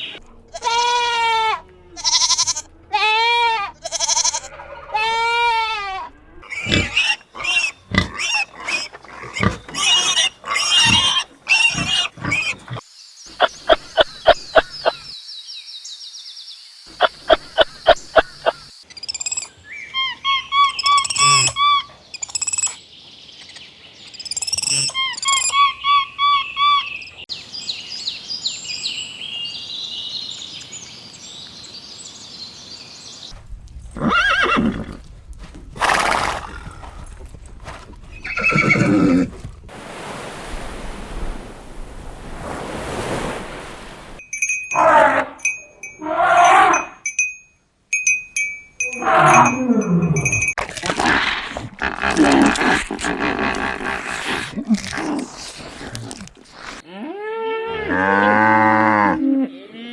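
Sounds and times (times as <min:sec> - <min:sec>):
wavering bleat: 0:00.5 - 0:12.4, 0:56.8 - 0:59.9.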